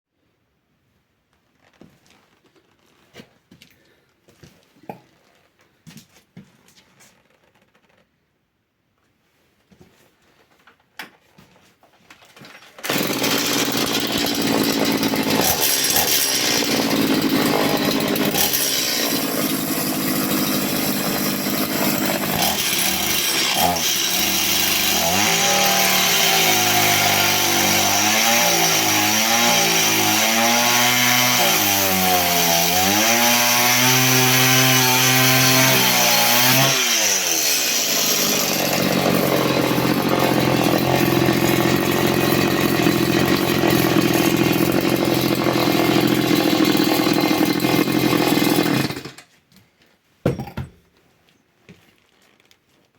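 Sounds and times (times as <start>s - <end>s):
chainsaw cutting metal: 12.8s - 49.3s.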